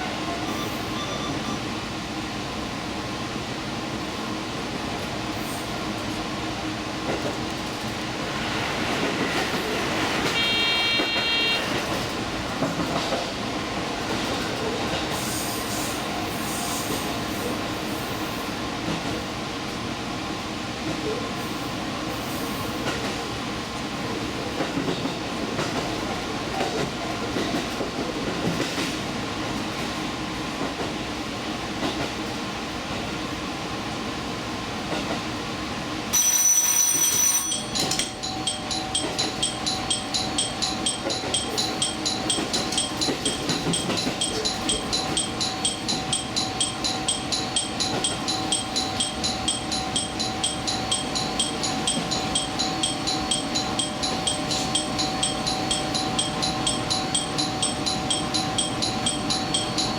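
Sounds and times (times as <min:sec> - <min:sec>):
train running noise: 0:00.0 - 0:59.9
short rapid beeps: 0:10.4 - 0:11.8, 0:37.6 - 0:59.9.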